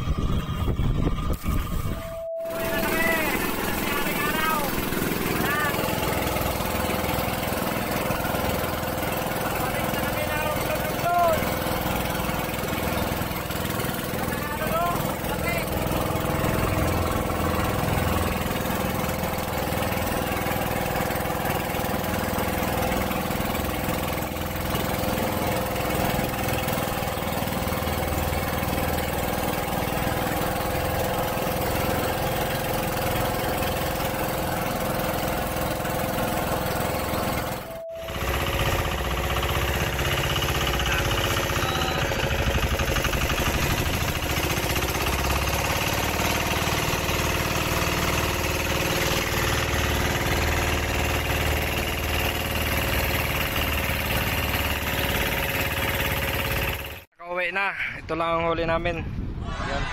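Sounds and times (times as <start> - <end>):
boat engine droning: 0.0 - 57.1
wind: 0.0 - 59.9.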